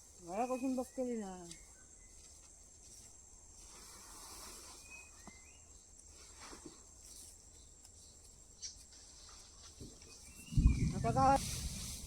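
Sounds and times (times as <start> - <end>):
faint chirps: 3.7 - 11.1.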